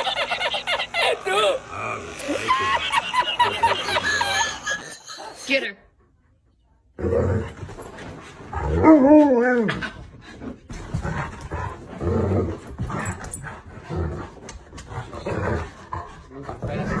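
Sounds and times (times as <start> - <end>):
dog grumbling: 0.0 - 4.8.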